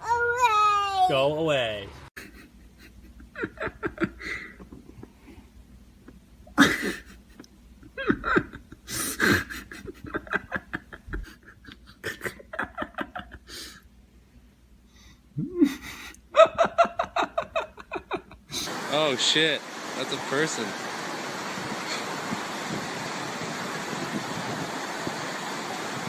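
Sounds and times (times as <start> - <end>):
people laughing: 2.2 - 5.0, 6.6 - 13.6, 15.5 - 18.7.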